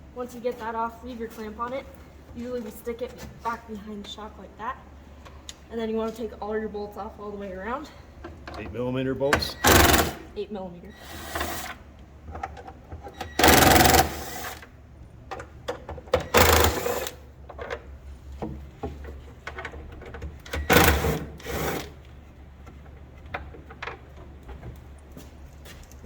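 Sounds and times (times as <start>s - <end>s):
power tool spinning bolts: 9.6s - 10.3s, 13.2s - 14.7s, 16.2s - 17.2s, 20.5s - 22.0s.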